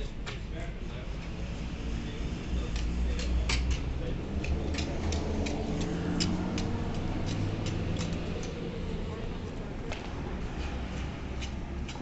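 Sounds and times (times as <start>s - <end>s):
sharp clicks and taps: 2.7s - 8.6s.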